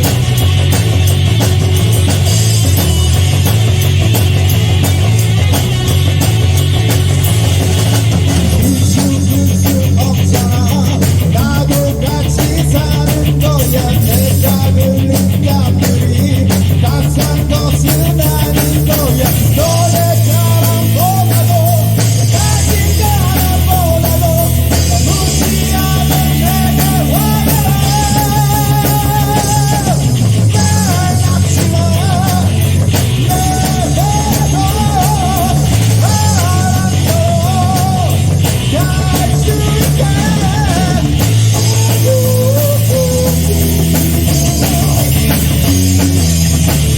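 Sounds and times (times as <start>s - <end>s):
rock band playing: 0.0s - 46.9s
person singing: 8.6s - 45.5s.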